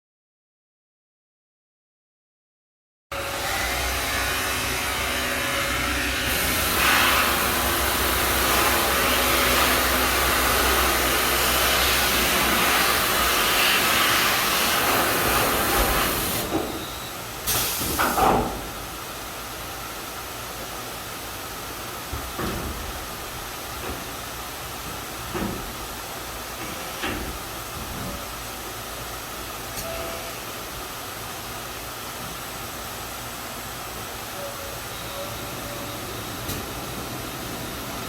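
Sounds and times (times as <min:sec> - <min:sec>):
grinding machine hissing: 0:03.3 - 0:18.0.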